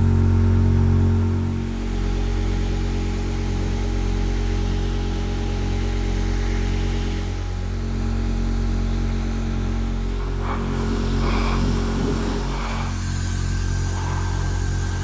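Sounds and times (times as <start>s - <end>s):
power tool motor humming: 9.8s - 15.0s.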